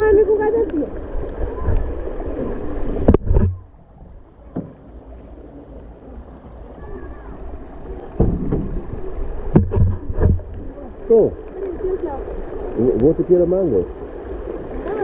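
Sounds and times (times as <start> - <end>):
low rumble on microphone: 0.0 - 15.0
rain and water noise: 0.0 - 15.0
sharp knocks: 8.2 - 8.8, 9.5 - 10.5.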